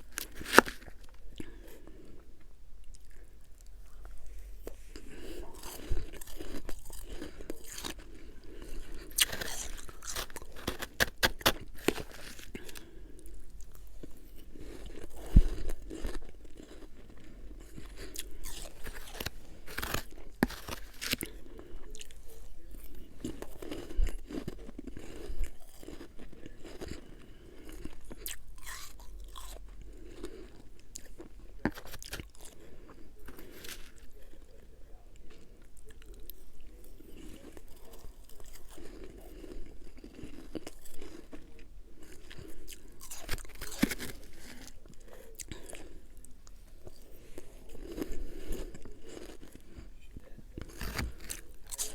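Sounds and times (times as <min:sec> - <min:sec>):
crunching ice: 0:00.0 - 0:02.1, 0:05.0 - 0:13.1, 0:14.0 - 0:34.3, 0:36.8 - 0:45.9, 0:50.6 - 0:51.9
soft chewing: 0:00.0 - 0:51.9.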